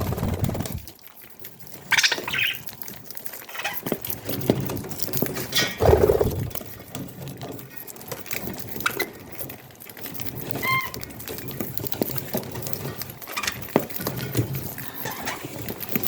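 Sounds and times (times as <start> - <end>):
budgies scratching and clicking: 0.0 - 16.0
budgie chirp: 2.0 - 2.7.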